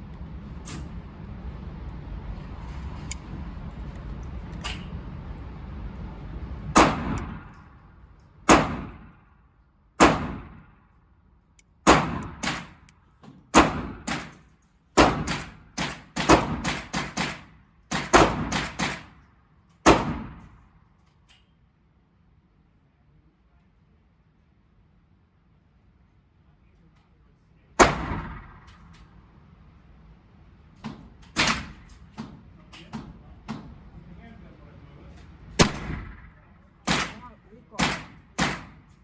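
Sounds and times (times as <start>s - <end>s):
gunshots: 6.8s - 7.5s, 8.5s - 9.2s, 10.0s - 10.7s, 11.9s - 12.8s, 13.5s - 14.4s, 15.0s - 19.1s, 19.9s - 20.4s, 27.8s - 28.7s, 35.6s - 38.8s.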